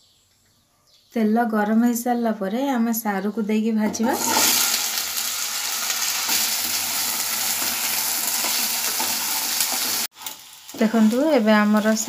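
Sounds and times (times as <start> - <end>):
food sizzling in hot oil: 3.9 - 12.0.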